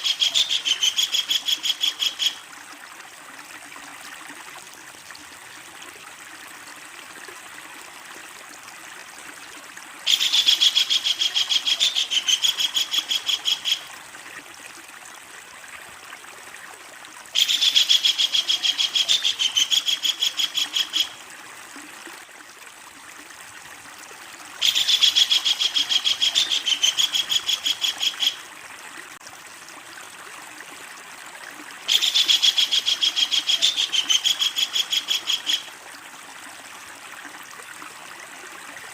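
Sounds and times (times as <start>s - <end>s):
kingfisher rattling call: 0.0s - 2.4s.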